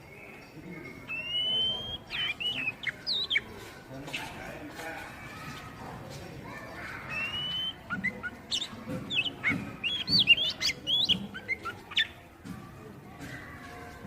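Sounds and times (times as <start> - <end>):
bird singing whistled notes: 0.0 - 3.5, 7.0 - 12.2.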